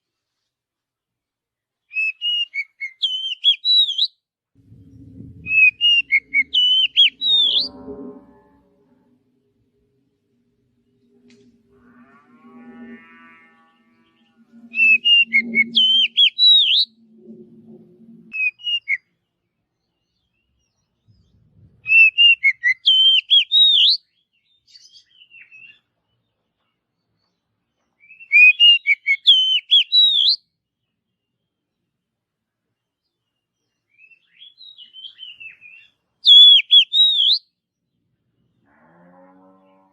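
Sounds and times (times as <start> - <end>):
bird singing whistled notes: 1.9 - 4.2, 4.8 - 8.0, 14.0 - 17.0, 18.3 - 19.2, 19.8 - 25.8, 28.0 - 30.4, 33.6 - 37.6.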